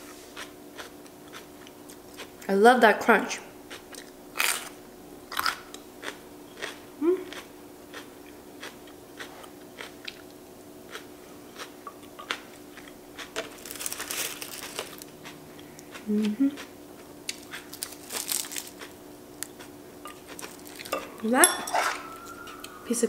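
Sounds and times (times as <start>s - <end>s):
crunchy chewing: 0.3s - 2.5s, 3.7s - 21.1s
dry crackling of seaweed sheets: 13.4s - 15.1s, 17.3s - 18.9s.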